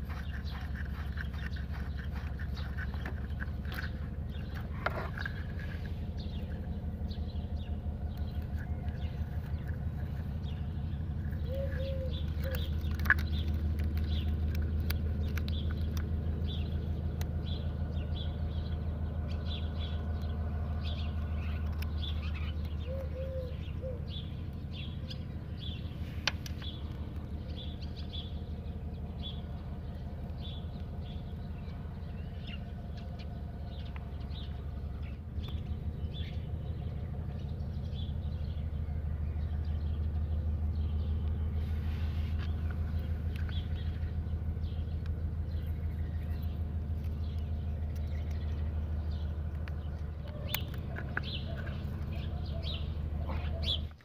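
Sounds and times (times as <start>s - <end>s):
birds chirping: 0.0s - 54.0s
low pulsing motor drone: 0.0s - 54.0s
sharp clicks: 46.4s - 52.8s.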